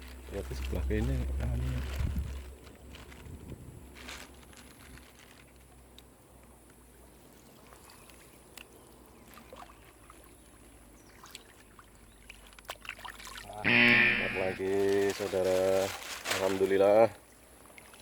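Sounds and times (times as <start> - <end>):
small ticks and splashes: 0.0 - 13.6, 14.6 - 18.0
water trickling and dripping: 7.3 - 13.6
faint high hiss: 13.7 - 15.2.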